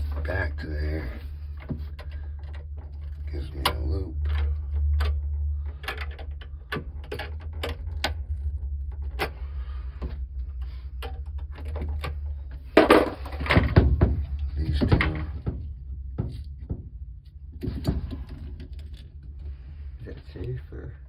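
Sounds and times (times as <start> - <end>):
steady low hum: 0.0 - 21.0
metallic clicks and rattles: 1.4 - 16.8.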